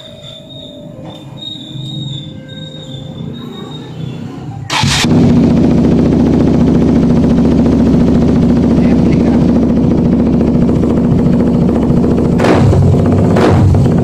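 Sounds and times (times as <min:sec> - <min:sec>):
motorcycle engine starting: 0:01.9 - 0:14.0.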